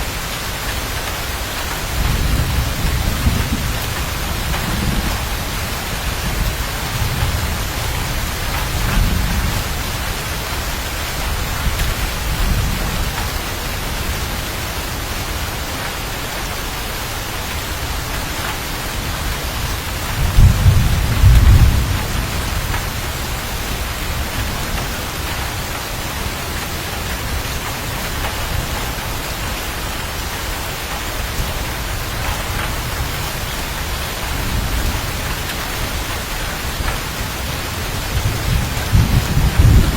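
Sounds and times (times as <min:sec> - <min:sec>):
heavy rain: 0:00.0 - 0:39.9
thunder rumbling: 0:00.0 - 0:39.9.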